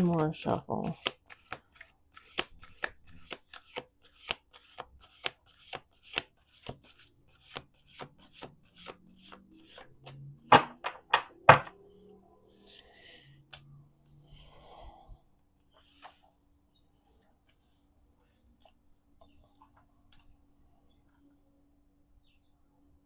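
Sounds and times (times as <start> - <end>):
cards being shuffled: 0.1 - 10.2.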